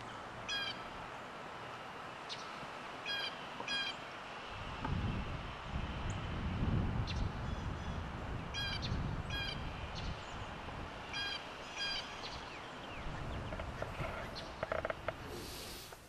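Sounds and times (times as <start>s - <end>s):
bird calling: 0.0s - 1.0s, 2.2s - 4.1s, 7.1s - 16.0s.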